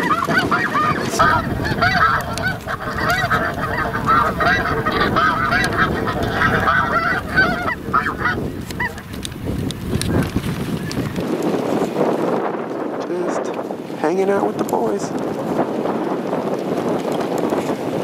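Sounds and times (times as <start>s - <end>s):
geese honking: 0.0s - 11.2s.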